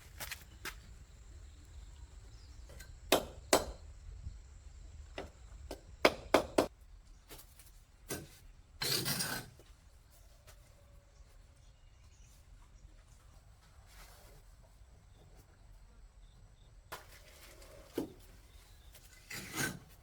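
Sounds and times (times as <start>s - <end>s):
sharp knocks of hard objects: 3.1s - 3.8s, 5.2s - 6.7s
scraping or rustling: 17.0s - 20.0s.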